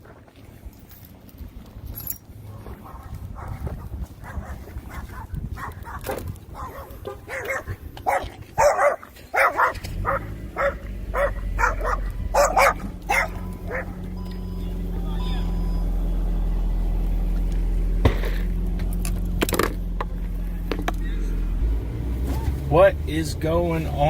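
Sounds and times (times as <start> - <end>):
dog barking: 2.5 - 14.1.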